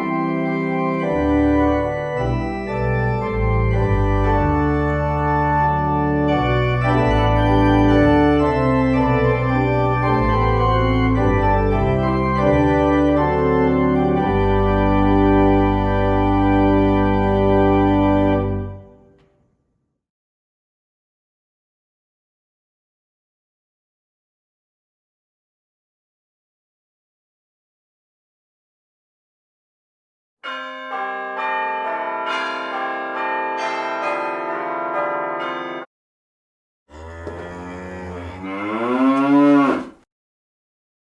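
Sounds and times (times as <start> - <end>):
church organ playing chords: 0.0 - 19.1, 30.4 - 35.8.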